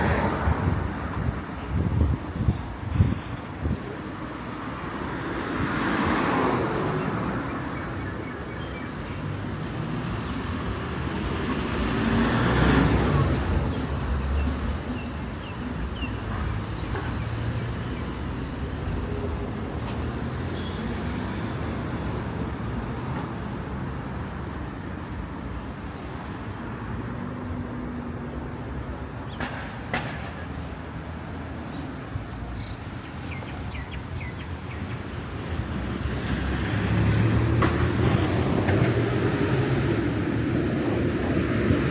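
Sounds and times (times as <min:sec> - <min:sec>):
road noise: 0:00.0 - 0:41.9.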